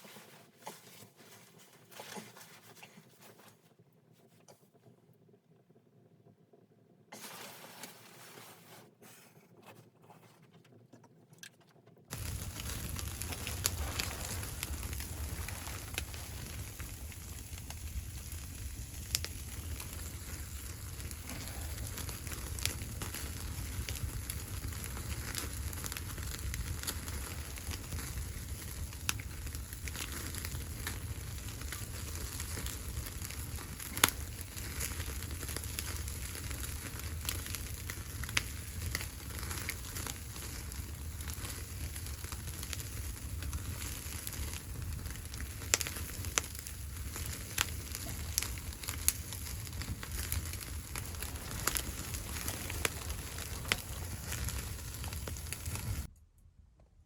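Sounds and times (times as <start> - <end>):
wood fire crackling: 0.0 - 4.2, 12.1 - 56.1
low steady rumble: 12.1 - 29.8.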